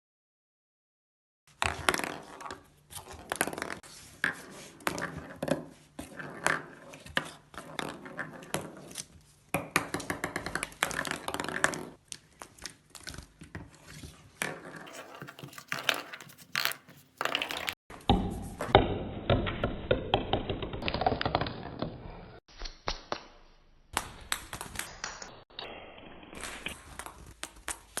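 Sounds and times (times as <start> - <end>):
bird playing with toy ball: 14.9 - 17.8.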